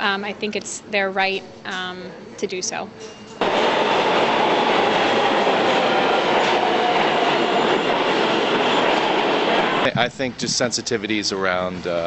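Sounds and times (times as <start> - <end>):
subway train rushing: 3.4 - 12.0.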